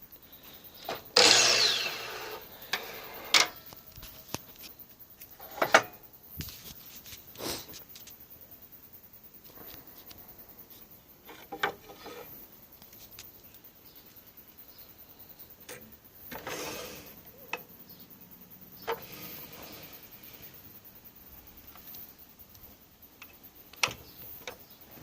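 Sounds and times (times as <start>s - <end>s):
rubbing rustle: 6.4s - 8.2s.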